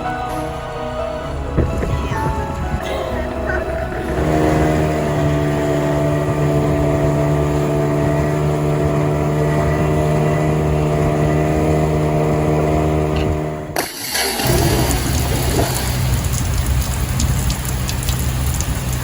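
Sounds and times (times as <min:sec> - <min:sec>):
diesel engine humming: 0:00.0 - 0:19.0.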